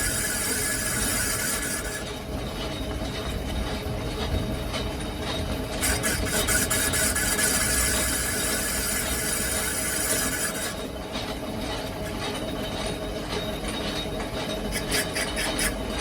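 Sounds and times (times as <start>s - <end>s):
metal cutting squeal: 0.0s - 2.2s, 5.8s - 10.9s, 14.7s - 16.0s
machine humming: 0.0s - 2.4s, 5.8s - 13.1s.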